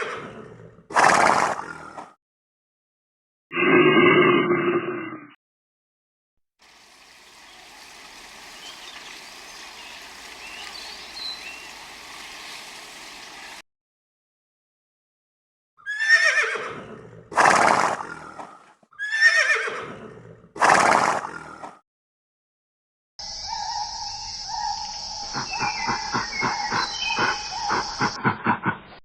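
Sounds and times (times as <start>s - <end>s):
faint outdoor background: 6.6s - 13.6s, 23.2s - 29.0s
horse whinnying: 15.8s - 18.0s, 19.0s - 21.2s.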